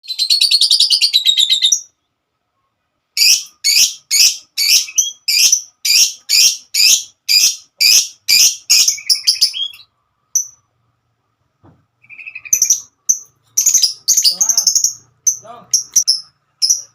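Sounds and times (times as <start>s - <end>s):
lovebird shrill calls: 3.2s - 9.8s, 12.0s - 16.9s.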